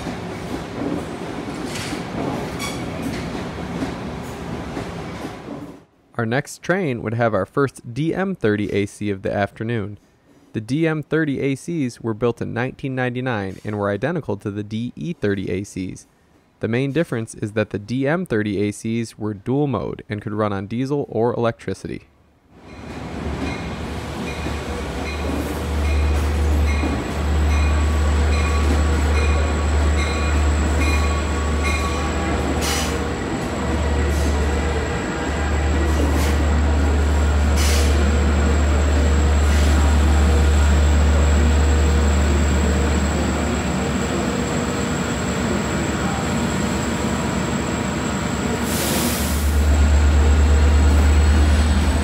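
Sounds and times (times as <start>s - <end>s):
train rumbling past: 0.0s - 5.9s, 22.6s - 52.0s
air hiss bursts: 32.6s - 33.0s, 37.5s - 38.0s, 48.6s - 49.7s.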